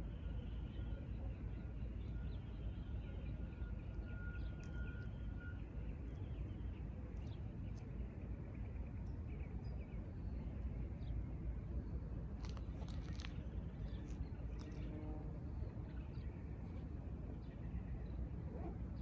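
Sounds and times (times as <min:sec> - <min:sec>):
thin steady whistle: 0:02.1 - 0:05.8.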